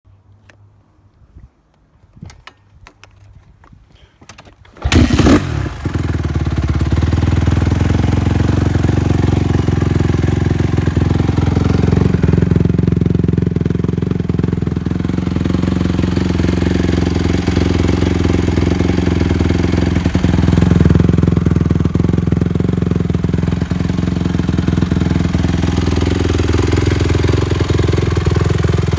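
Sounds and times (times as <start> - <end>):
motorcycle engine idling: 4.8 - 28.9.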